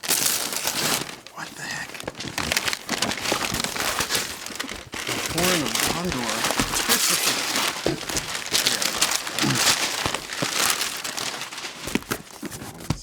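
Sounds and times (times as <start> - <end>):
paper packaging crinkling: 0.0 - 13.0.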